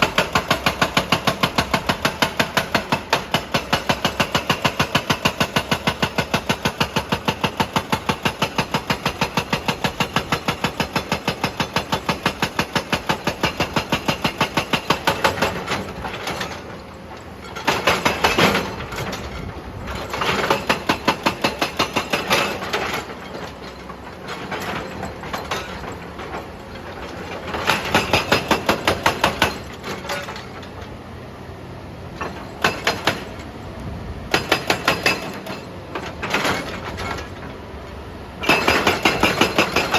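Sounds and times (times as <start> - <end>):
hydraulic breaker hammering rock: 0.0 - 31.0, 32.1 - 33.5, 34.3 - 37.6, 38.4 - 39.9.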